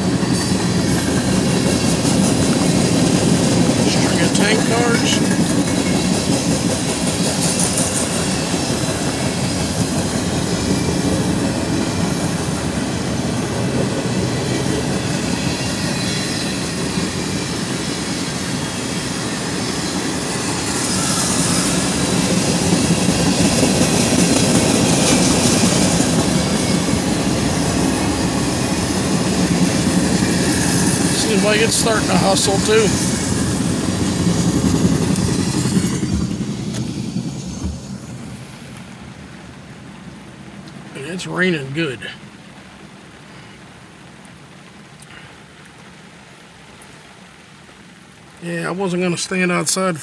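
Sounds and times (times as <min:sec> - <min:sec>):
steel wheels rumbling on rail: 0:00.0 - 0:41.0
high wheel screech: 0:14.3 - 0:36.9.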